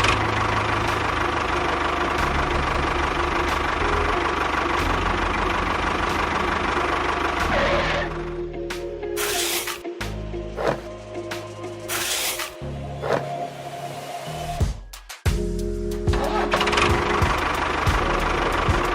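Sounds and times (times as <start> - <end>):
engine chugging at idle: 0.0 - 8.5, 16.0 - 18.9.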